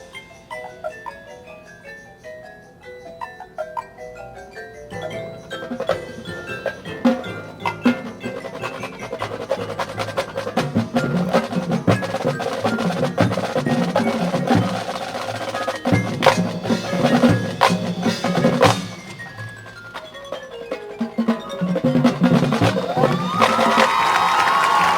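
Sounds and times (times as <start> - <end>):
mallet percussion: 0.0 - 24.9
snare drum rolls: 5.6 - 20.1, 21.1 - 24.9.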